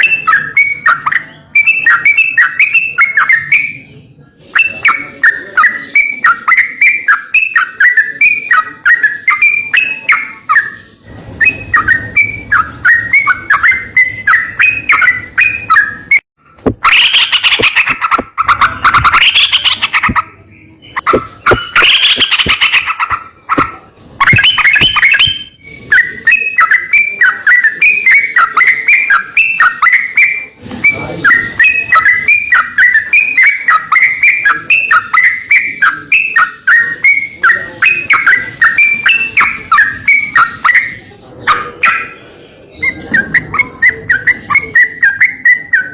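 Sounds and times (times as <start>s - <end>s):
harsh scratchy bird phrases: 0.0s - 45.9s
songbird chirping: 0.0s - 45.9s.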